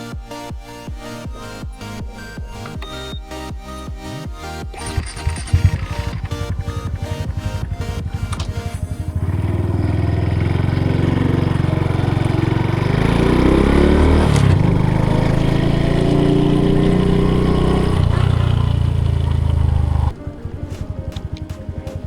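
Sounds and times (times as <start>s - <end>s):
motorcycle engine running: 4.7s - 22.0s.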